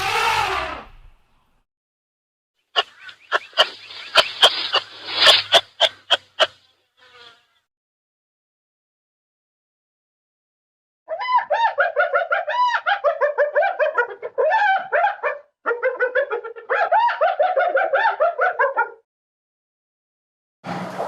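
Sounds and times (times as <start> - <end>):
animal high-pitched rapid calls: 2.8 - 6.6.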